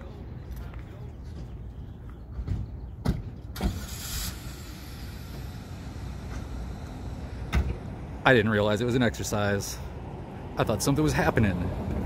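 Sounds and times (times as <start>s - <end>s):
car engine idling: 3.4s - 10.0s.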